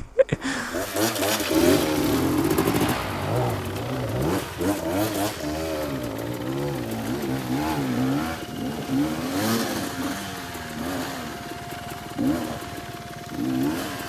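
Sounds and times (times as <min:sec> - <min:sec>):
dirt bike engine revving: 0:00.4 - 0:14.0.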